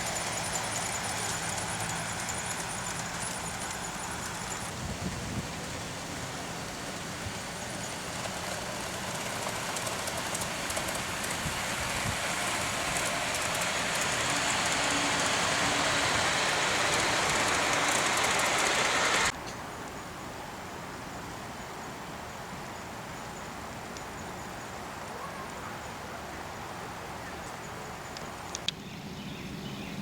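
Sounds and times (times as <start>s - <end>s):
moving train rushing: 0.0s - 19.4s.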